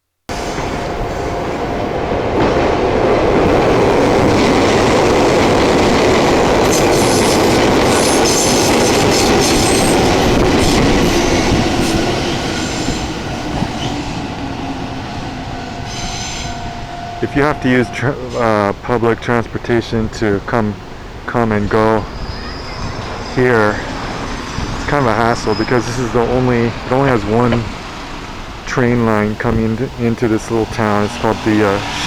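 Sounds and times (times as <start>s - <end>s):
train wheels rumbling on rails: 0.3s - 19.0s, 29.0s - 32.0s
high wheel squeals: 6.7s - 18.5s, 29.0s - 32.0s.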